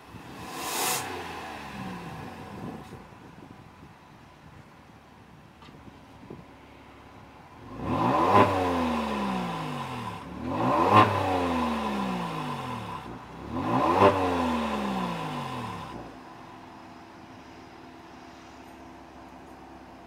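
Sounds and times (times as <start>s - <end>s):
car engine revving: 0.0s - 3.0s, 7.6s - 16.2s
car engine idling: 0.0s - 7.8s, 14.7s - 20.0s.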